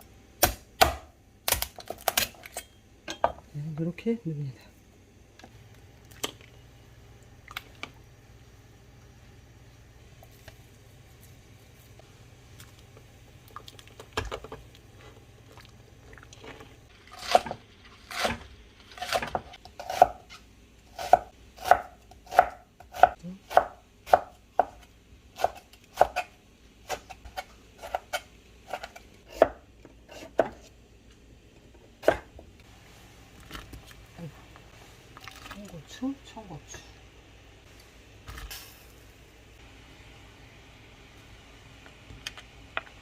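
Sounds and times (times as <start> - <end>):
knife chopping on cutting board: 19.0 - 20.3, 21.0 - 24.8, 26.9 - 30.7.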